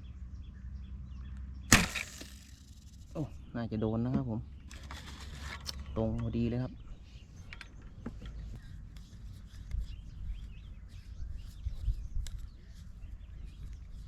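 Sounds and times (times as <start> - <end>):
small birds chirping: 5.6 - 14.0.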